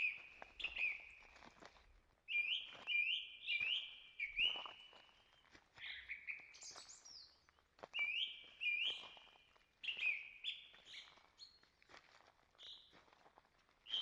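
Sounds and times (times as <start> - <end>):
songbirds singing: 0.0 - 1.3, 2.3 - 11.6.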